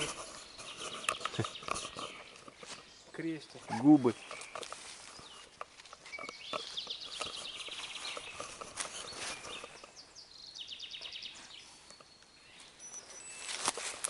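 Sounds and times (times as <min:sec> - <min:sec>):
faint clicks and rustles: 0:00.0 - 0:10.2, 0:11.4 - 0:14.0
songbird trilling: 0:06.0 - 0:13.6.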